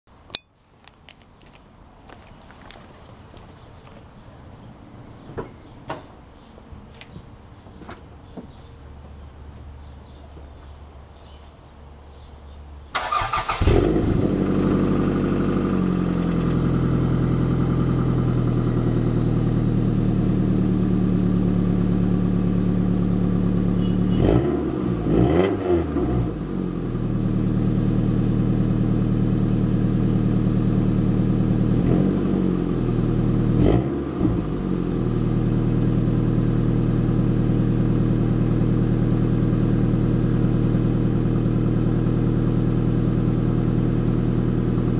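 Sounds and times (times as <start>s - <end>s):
car engine idling and revving: 13.1s - 44.9s.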